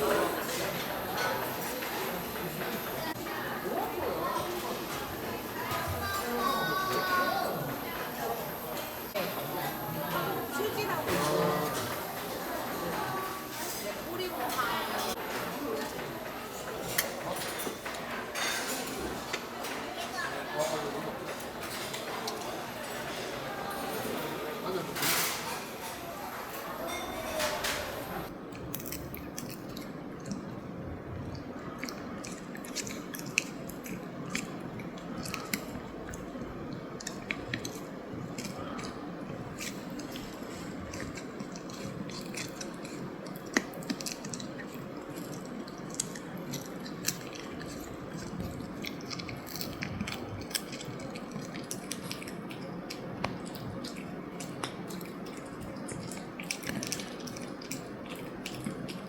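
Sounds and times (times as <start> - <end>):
utensils clicking on dishes: 0.0 - 7.1, 10.0 - 29.6
chewing: 0.0 - 59.0
room murmur: 0.0 - 59.0.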